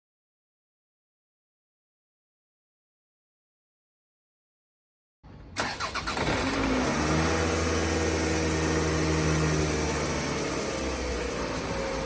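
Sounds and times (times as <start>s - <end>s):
car engine idling: 5.6s - 12.0s.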